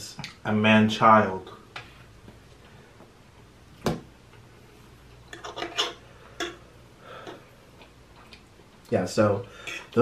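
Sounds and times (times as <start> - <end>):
mouth chewing with wet clicks: 7.3 - 8.9.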